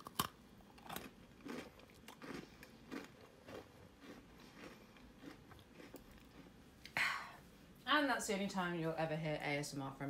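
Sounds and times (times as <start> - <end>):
chewing crunchy cookie: 0.0 - 6.6.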